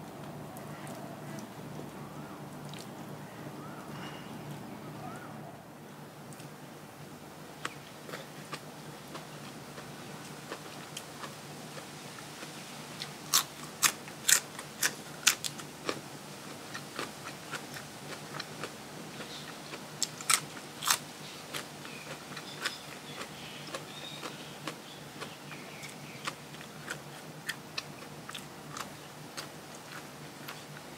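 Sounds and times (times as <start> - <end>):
person chewing crisp food: 7.6 - 30.9.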